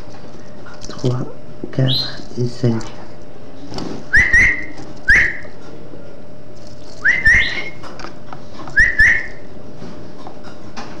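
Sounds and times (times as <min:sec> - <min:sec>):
small bird whistled calls: 0:04.1 - 0:05.5, 0:07.0 - 0:07.8, 0:08.7 - 0:09.5.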